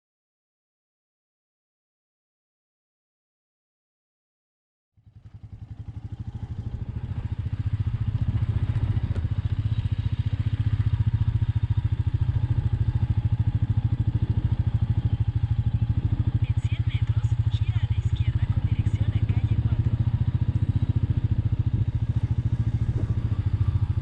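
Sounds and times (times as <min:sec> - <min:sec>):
motorcycle engine pulsing: 0:05.0 - 0:24.0.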